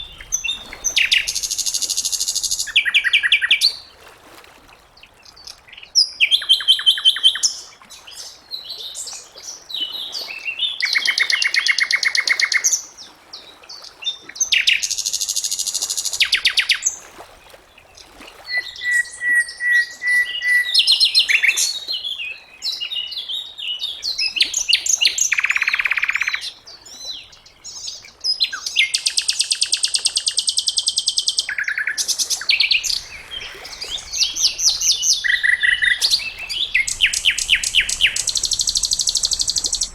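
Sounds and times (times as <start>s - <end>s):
bird singing trills: 0.0s - 3.8s, 28.5s - 39.9s.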